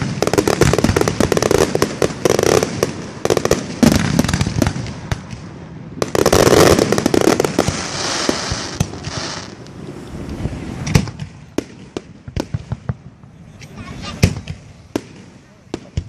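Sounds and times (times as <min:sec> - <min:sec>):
fireworks bangs: 0:00.0 - 0:16.0
fireworks hissing: 0:06.0 - 0:16.0.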